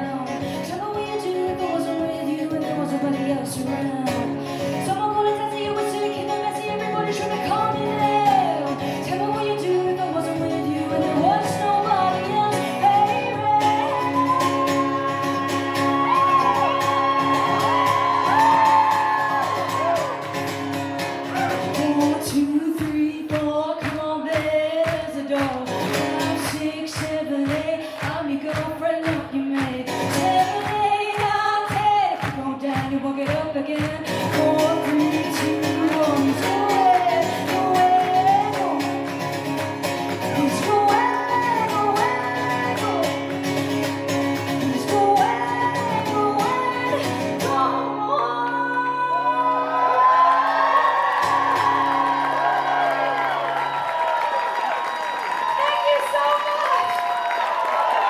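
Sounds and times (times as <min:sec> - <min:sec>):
woman singing lead: 0:00.0 - 0:53.5
pop-rock band playing live: 0:32.8 - 0:49.1.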